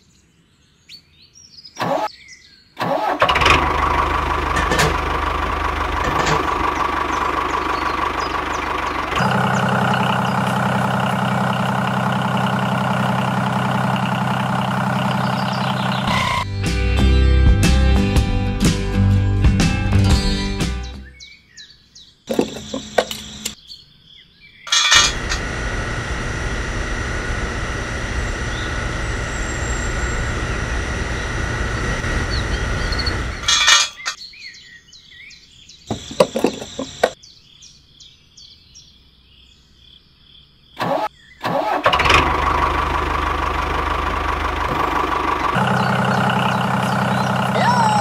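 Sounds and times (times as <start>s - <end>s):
small motor running: 25.0s - 33.5s.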